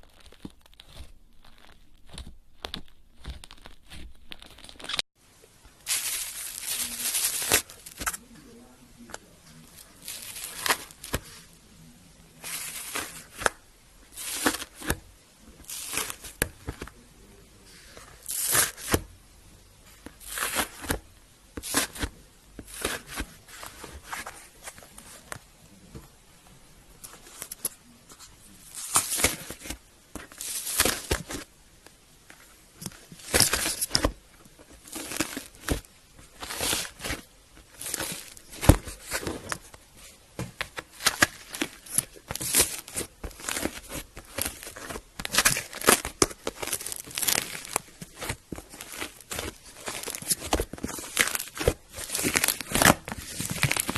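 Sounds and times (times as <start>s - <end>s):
slime squelching and crackling: 0.0s - 5.1s, 5.7s - 11.6s, 12.2s - 17.0s, 18.1s - 19.0s, 19.9s - 25.3s, 28.6s - 31.5s, 32.5s - 53.9s.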